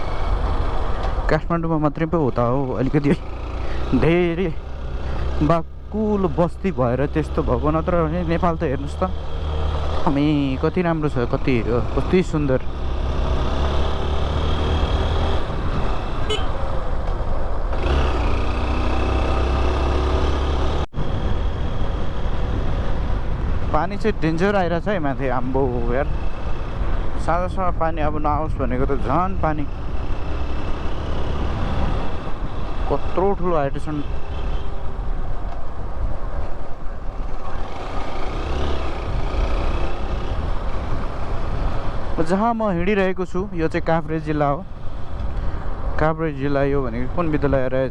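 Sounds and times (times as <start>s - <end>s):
wind noise on microphone: 15.1s - 16.6s
motorcycle engine running: 17.7s - 20.8s, 37.2s - 42.0s.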